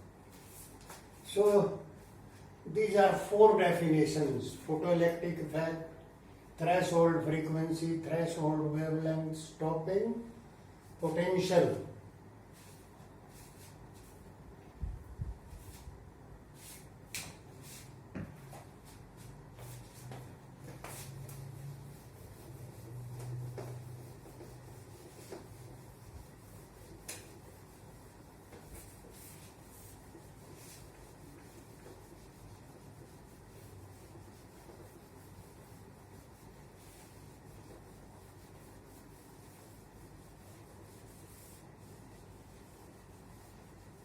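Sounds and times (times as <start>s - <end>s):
scratching of writing: 20.8s - 44.0s.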